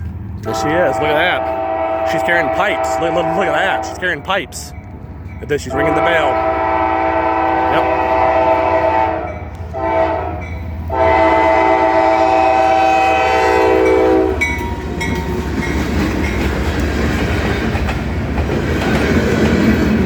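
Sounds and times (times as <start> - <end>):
train air horn blasts: 0.4 - 4.3, 5.7 - 14.6
train wheels clattering over rails: 13.2 - 20.0.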